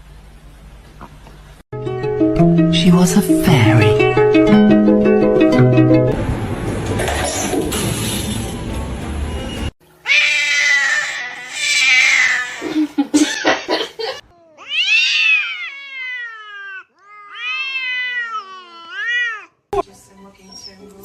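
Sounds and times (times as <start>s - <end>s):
cat yowling: 10.0s - 12.7s, 14.5s - 19.6s.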